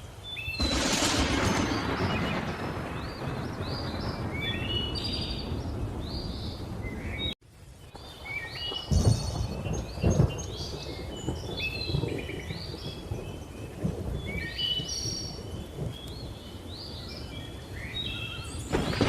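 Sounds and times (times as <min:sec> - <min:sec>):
birds chirping: 0:00.2 - 0:19.0
thunder claps: 0:00.6 - 0:07.4, 0:08.7 - 0:16.4, 0:18.6 - 0:19.0.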